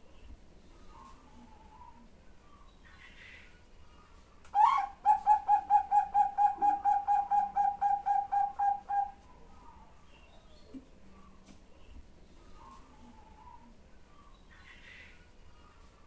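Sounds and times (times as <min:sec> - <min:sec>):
dove calling rapid notes: 0:04.6 - 0:09.2.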